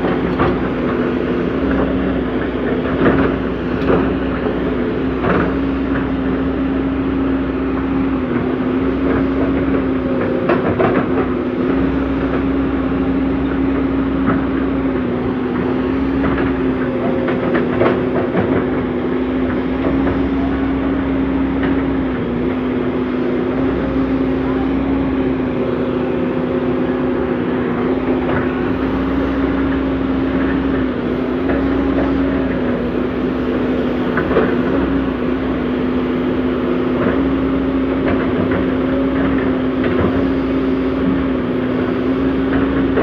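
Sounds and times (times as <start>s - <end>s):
machine knocks and clanks: 0.0s - 6.2s, 8.3s - 12.6s, 13.4s - 35.6s
excavator diesel engine running: 0.0s - 43.0s.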